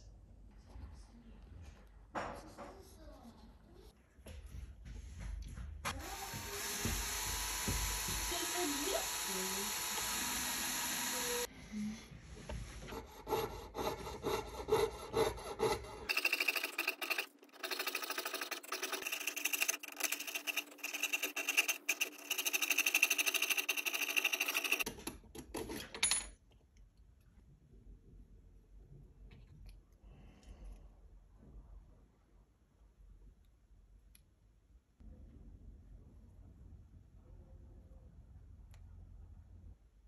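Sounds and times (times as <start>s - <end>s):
saw cutting metal: 6.0s - 11.5s, 13.0s - 24.9s
small electric drill whining: 6.0s - 11.5s, 16.1s - 24.9s.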